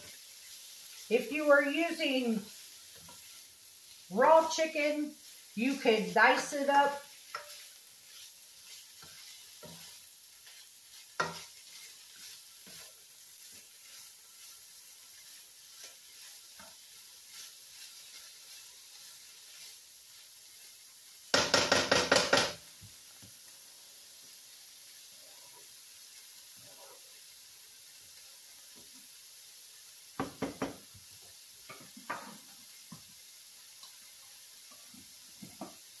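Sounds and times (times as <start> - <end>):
food sizzling in a skillet: 0.0 - 36.0
quick strokes against pan: 6.9 - 20.7
utensil clicking on pan: 7.3 - 7.7, 11.2 - 11.6, 21.3 - 22.6.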